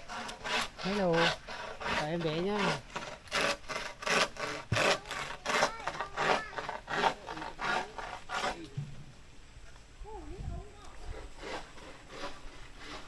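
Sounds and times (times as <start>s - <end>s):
hand saw cutting wood: 0.0s - 8.7s, 11.0s - 13.0s.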